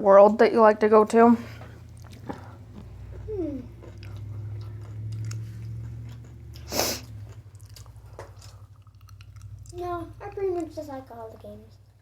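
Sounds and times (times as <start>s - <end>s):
steady low hum: 0.0s - 12.0s
chewing close to microphone: 1.9s - 9.8s
wet mouth clicks: 3.8s - 9.8s
loud breath hiss: 6.7s - 7.1s.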